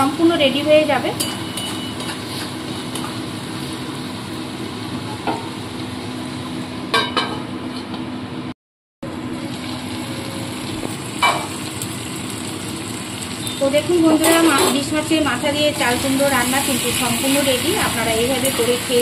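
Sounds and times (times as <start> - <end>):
curry sizzling in a pan: 0.0 - 6.6, 9.1 - 19.0
spatula clinking on metal pan: 1.2 - 2.2.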